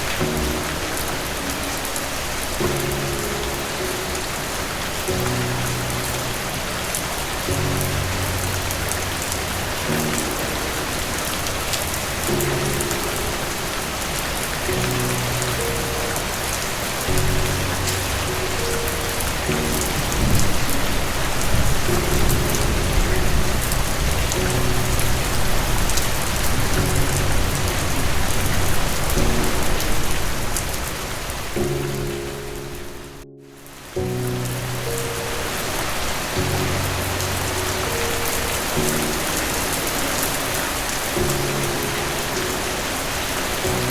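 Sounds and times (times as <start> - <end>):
soft music of low chords: 0.0 - 43.9
steady rain falling: 0.0 - 43.9
low rumble of thunder: 17.1 - 31.6.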